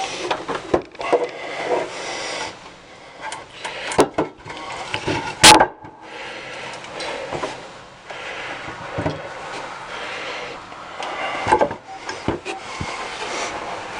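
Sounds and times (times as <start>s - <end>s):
hands scraping and rubbing parts: 0.0s - 5.5s, 10.6s - 13.9s.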